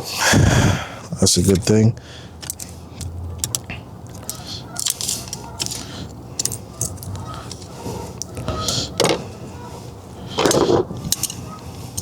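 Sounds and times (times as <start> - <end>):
pliers clicking and scraping metal: 2.4 - 9.2, 10.3 - 12.0.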